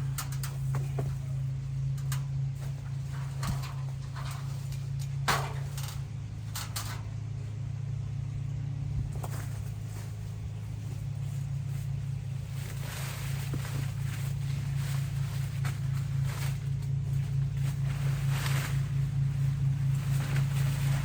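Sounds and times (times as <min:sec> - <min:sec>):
engine humming: 0:00.0 - 0:21.0
sharp cracks and rustles: 0:09.1 - 0:21.0.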